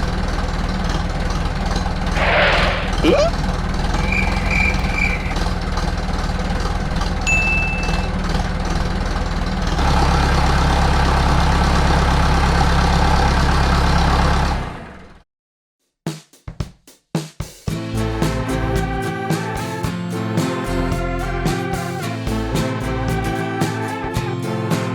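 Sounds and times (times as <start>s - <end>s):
engine-like running drone: 0.0s - 15.2s
brief high ding: 7.3s - 8.1s.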